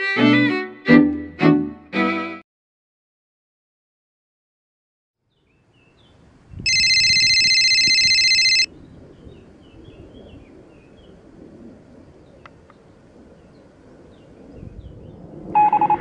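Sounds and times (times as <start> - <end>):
loud steady electronic tone: 6.7 - 8.7.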